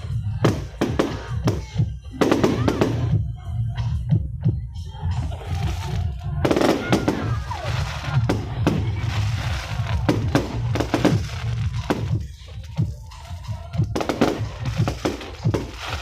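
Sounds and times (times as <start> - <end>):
fireworks bangs and crackles: 0.0 - 16.0
music with low beat: 0.0 - 16.0.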